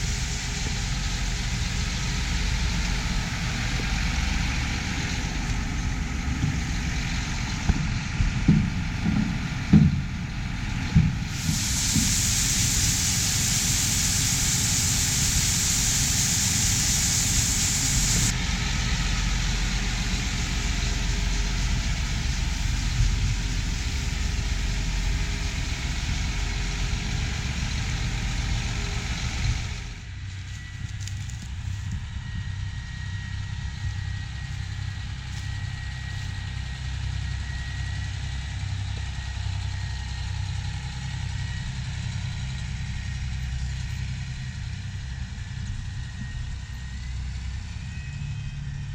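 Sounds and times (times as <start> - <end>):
loud hiss: 0.0 - 7.7, 11.2 - 30.0
diesel engines of harvest machinery: 0.0 - 48.9.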